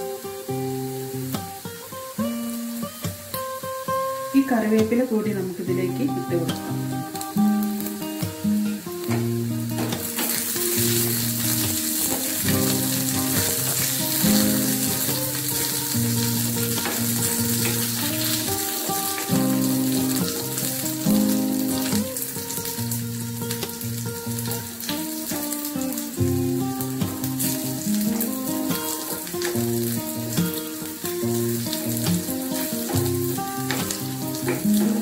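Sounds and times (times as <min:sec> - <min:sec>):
spices sizzling in hot oil: 0:00.0 - 0:35.0
spatula stirring in pan: 0:09.8 - 0:18.8.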